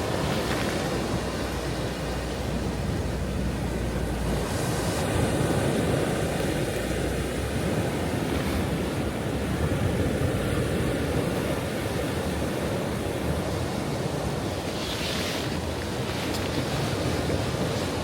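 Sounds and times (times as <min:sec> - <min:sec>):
ocean waves breaking on shore: 0:00.0 - 0:18.0.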